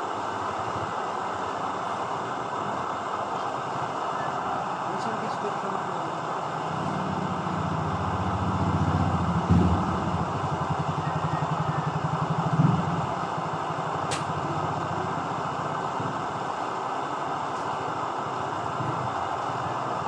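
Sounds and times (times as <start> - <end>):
camping stove burning: 12.0 - 20.0
sharp metallic click: 14.1 - 14.3.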